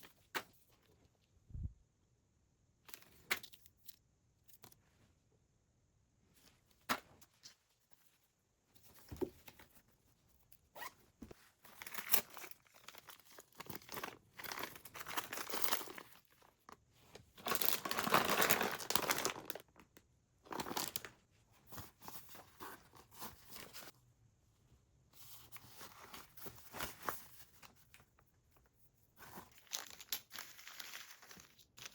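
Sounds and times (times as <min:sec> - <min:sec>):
packaging rustling and crinkling: 0:10.8 - 0:23.9, 0:29.2 - 0:31.9.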